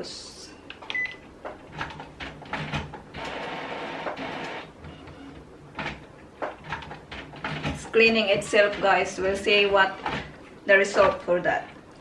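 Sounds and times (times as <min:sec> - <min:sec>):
printer motor whir: 0:02.5 - 0:06.1.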